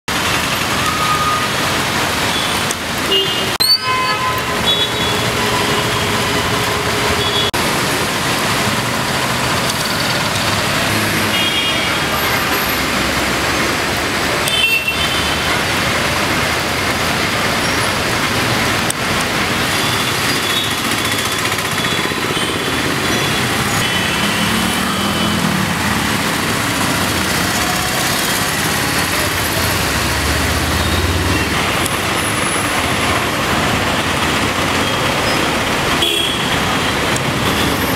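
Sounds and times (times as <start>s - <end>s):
wet road noise: 0.1s - 37.9s
vehicles passing: 4.2s - 37.9s
rain hissing: 5.0s - 36.0s
heavy engine passing: 20.9s - 36.0s.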